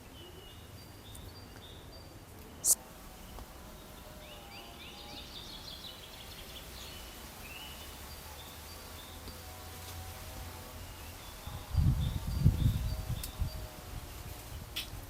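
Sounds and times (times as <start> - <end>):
small birds chirping: 0.0 - 9.6
low outdoor background hum: 0.0 - 15.0.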